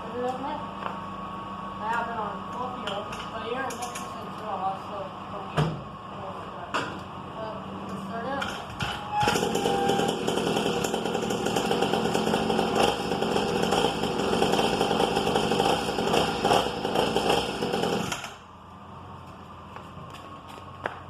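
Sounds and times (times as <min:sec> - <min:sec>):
small motorbike engine buzzing: 0:08.8 - 0:18.4.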